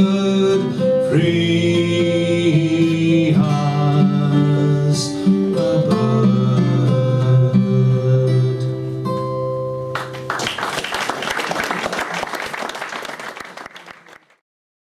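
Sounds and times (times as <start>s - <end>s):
audience clapping: 10.0s - 14.4s.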